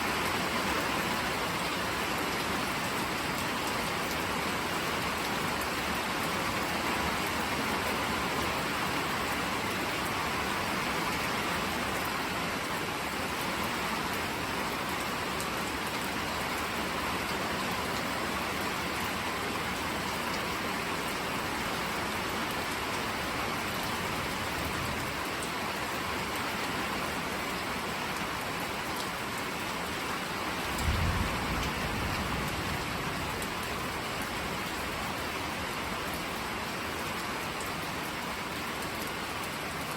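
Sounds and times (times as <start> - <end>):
steady rain: 0.0 - 39.9
thunder rumble: 30.8 - 34.2.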